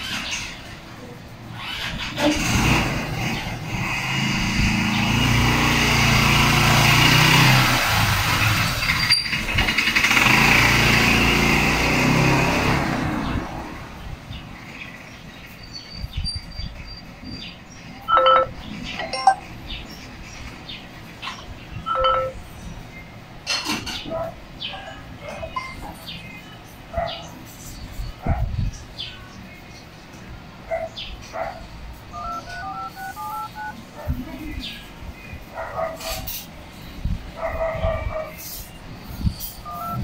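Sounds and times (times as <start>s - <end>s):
vehicle engine running: 32.1s - 33.7s.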